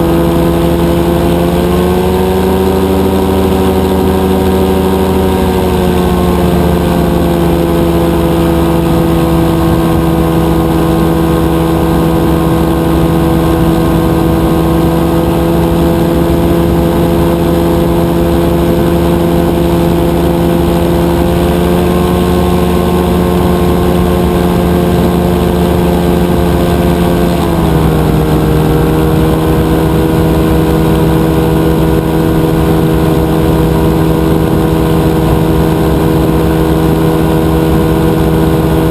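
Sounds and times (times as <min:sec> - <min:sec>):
two-stroke engine running: 0:00.0 - 0:38.9.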